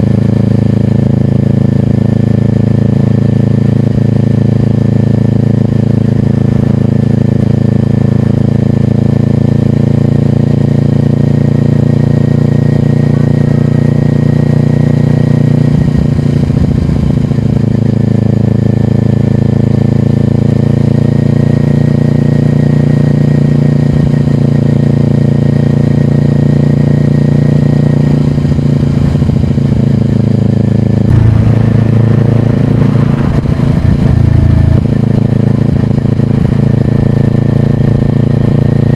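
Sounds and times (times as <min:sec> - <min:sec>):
motorcycle engine running: 0:00.0 - 0:38.9
low rumbles: 0:28.7 - 0:38.7.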